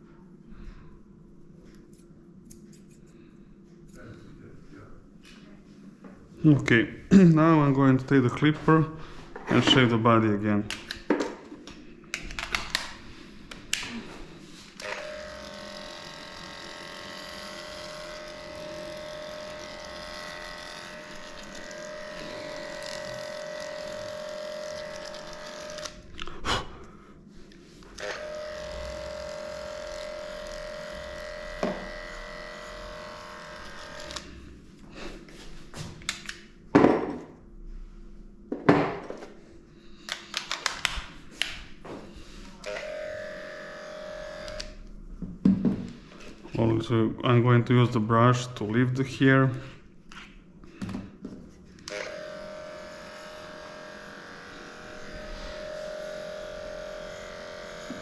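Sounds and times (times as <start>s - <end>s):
electric clippers humming: 13.5s - 26.0s, 27.9s - 34.6s, 42.5s - 45.0s, 51.8s - 58.0s.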